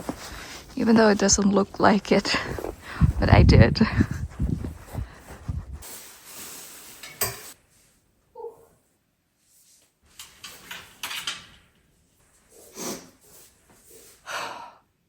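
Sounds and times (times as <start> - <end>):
rustling: 0.0 - 8.0.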